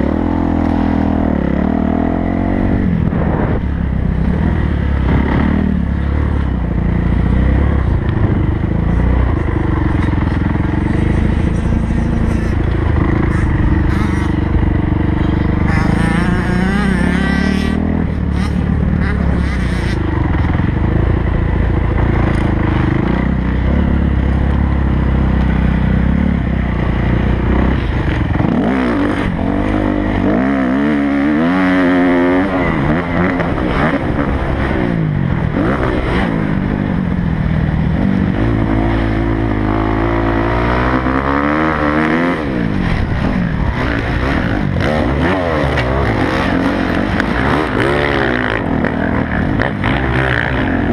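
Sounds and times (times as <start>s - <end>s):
motocross bike engine revving: 0.0s - 50.9s.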